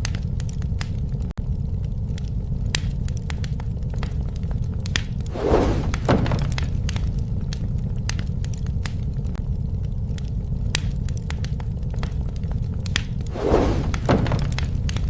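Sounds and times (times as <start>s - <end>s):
fire roaring low: 0.0s - 15.0s
wood fire crackling and popping: 0.0s - 15.0s
loud crash: 5.3s - 6.5s, 13.3s - 14.6s
thud: 5.3s - 6.8s, 13.3s - 15.0s.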